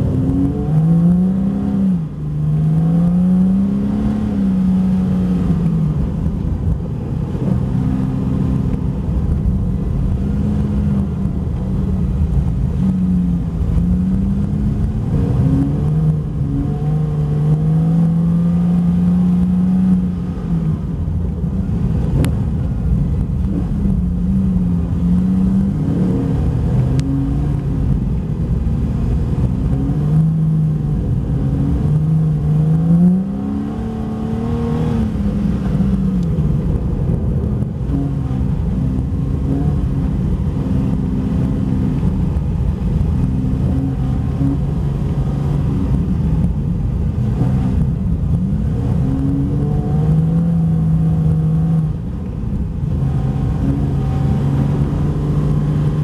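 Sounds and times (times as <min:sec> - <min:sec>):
car engine revving: 0:00.0 - 0:56.0
steady low rumble: 0:00.0 - 0:56.0.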